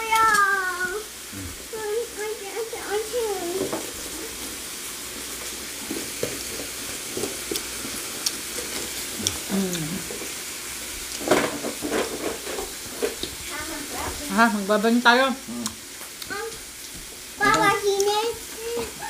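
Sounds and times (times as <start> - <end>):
meat sizzling on a grill: 0.0 - 19.0
small crackles: 2.8 - 14.3.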